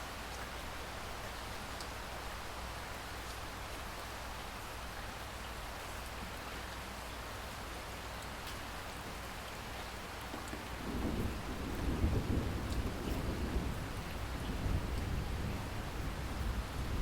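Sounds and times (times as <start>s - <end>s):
steady rain falling: 0.0s - 17.0s
low rumble of thunder: 10.6s - 17.0s.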